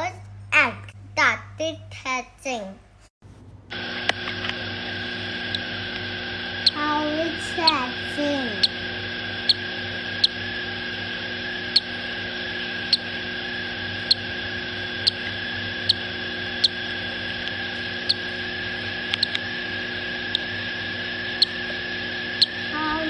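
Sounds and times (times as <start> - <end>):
electrical hum: 3.2 - 23.0
constant high whine: 3.3 - 23.0
parrot chicks chirping: 5.4 - 5.8, 6.5 - 6.8, 7.4 - 10.6, 11.5 - 20.6, 21.3 - 21.7, 22.4 - 22.6.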